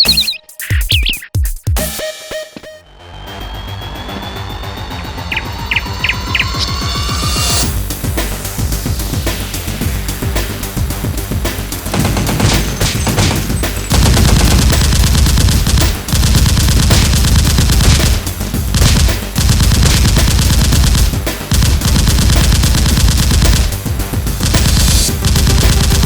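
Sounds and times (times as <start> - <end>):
background music: 0.0 - 26.0
automatic gunfire bursts: 11.9 - 26.0.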